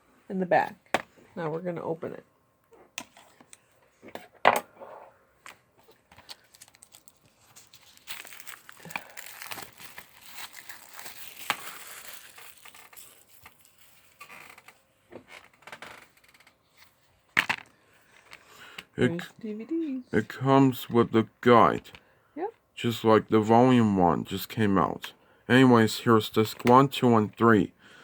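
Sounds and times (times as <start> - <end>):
plastic wrapping crinkling: 5.8 - 14.8.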